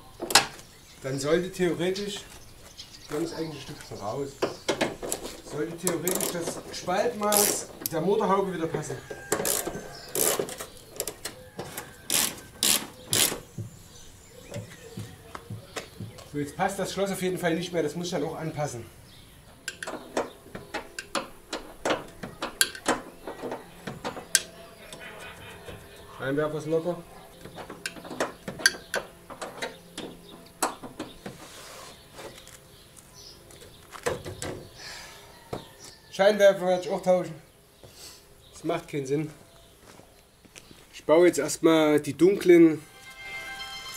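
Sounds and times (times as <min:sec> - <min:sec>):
metallic clatters and rattles: 0:19.6 - 0:24.7, 0:27.2 - 0:31.3.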